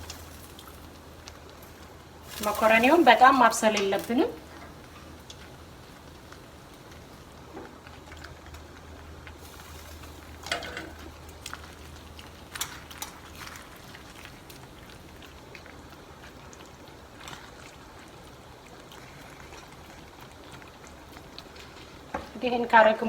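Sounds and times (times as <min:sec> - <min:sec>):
sauce simmering and bubbling: 0:00.0 - 0:23.0
utensil clinking against pan: 0:10.4 - 0:11.1.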